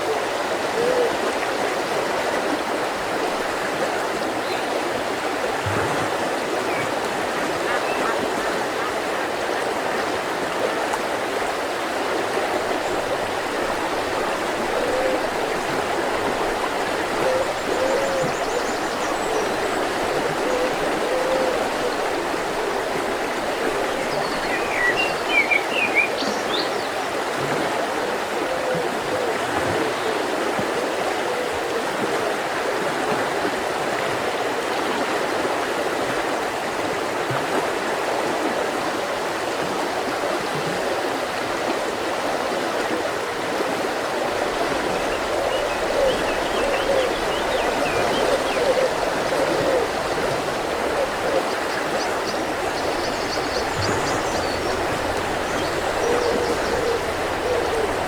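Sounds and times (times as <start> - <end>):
river flowing over rocks: 0.0 - 58.0
bird chirping: 51.5 - 58.0.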